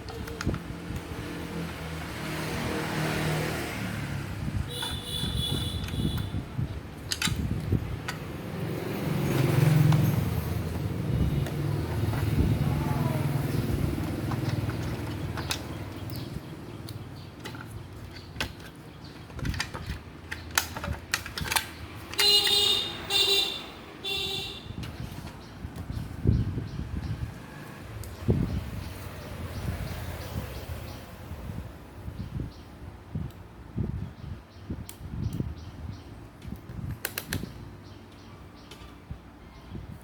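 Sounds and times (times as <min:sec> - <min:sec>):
motorbike rumbling by: 0:01.1 - 0:05.9, 0:08.4 - 0:16.7.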